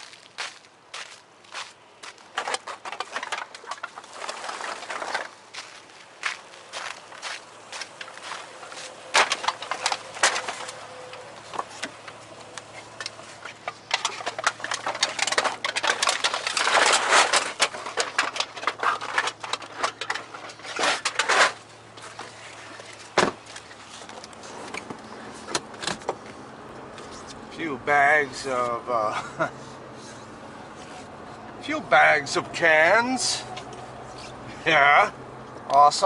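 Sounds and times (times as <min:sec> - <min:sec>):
plastic bags rustling: 0:02.2 - 0:25.5
thump: 0:23.2 - 0:23.4.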